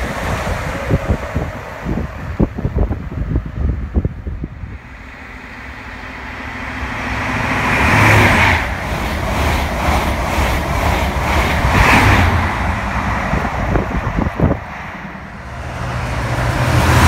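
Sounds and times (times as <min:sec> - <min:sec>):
train rushing rumble: 0:00.0 - 0:17.0
clatter of train wheels: 0:07.9 - 0:14.6.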